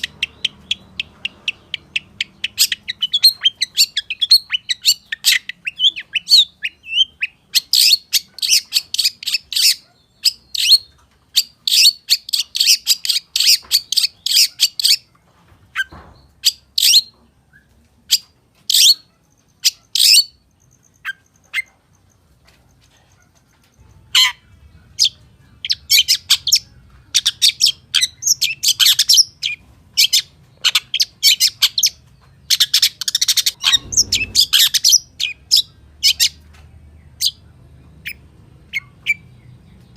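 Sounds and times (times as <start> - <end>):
bird singing chattering song: 0.0 - 39.9.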